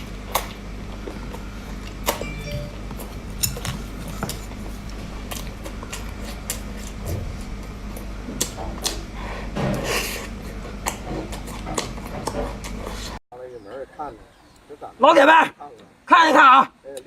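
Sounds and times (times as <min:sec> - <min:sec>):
food crunching while chewed: 0:00.0 - 0:02.2, 0:03.4 - 0:13.1.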